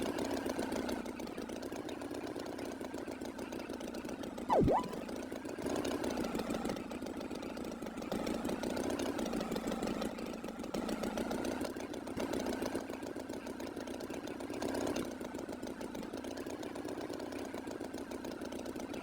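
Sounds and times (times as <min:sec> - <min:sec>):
cartoon tractor engine chugging: 0:00.0 - 0:19.0
swooping tone: 0:04.5 - 0:05.0.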